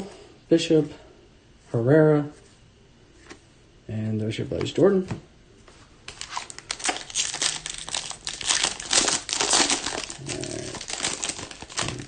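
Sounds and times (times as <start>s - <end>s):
foil wrapper crinkling and tearing: 6.1s - 12.0s.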